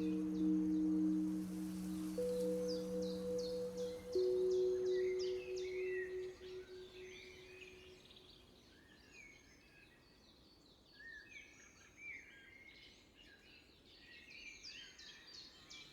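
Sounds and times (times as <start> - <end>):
held ringing tone: 0.0 - 7.4
small birds chirping: 0.0 - 7.8.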